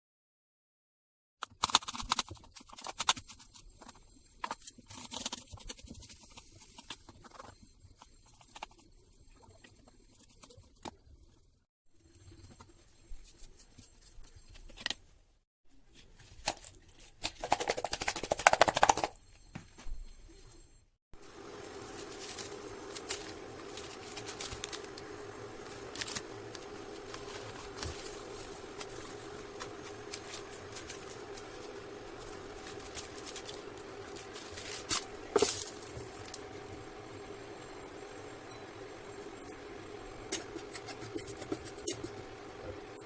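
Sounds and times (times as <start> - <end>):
utensils clicking and scraping: 21.3 - 36.8, 40.2 - 42.6.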